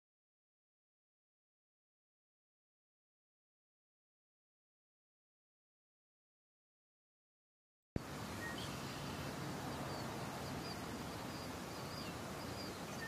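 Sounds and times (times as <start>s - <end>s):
background hiss: 8.0s - 13.0s
small birds chirping: 8.2s - 13.0s.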